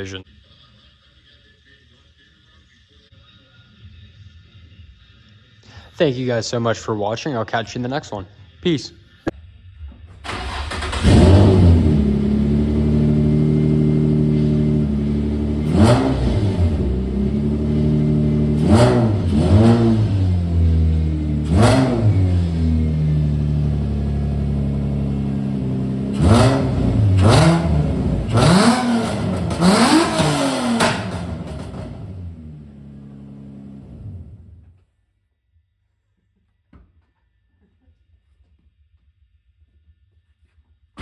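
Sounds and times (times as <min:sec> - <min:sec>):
car engine idling and revving: 0:09.8 - 0:34.8
car engine starting: 0:09.8 - 0:34.8.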